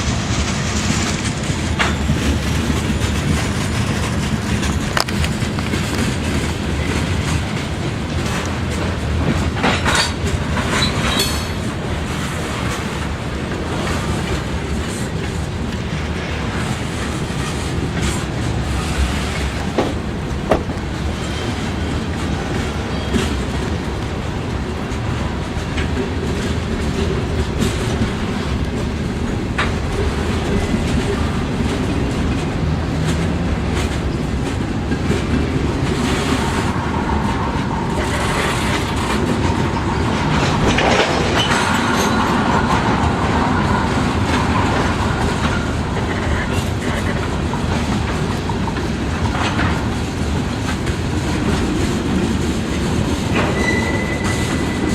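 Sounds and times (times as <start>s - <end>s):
train rumbling past: 0.0s - 54.9s
wheels clacking over rail joints: 0.1s - 54.9s.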